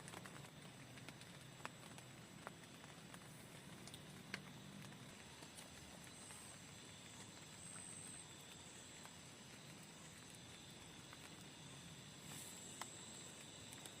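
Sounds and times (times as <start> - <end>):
soft ticks: 0.0 - 6.4
faint steady hiss: 0.0 - 14.0.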